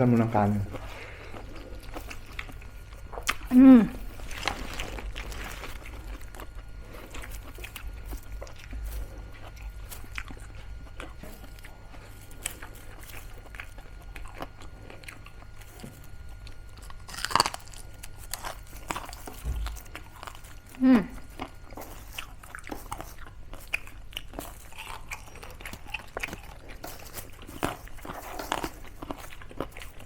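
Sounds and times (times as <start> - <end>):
chewing crunchy food: 0.6 - 30.0.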